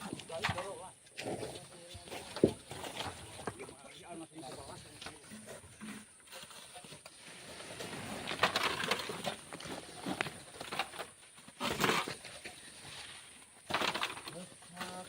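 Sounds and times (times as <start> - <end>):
shovel scraping sand: 7.0 - 10.5.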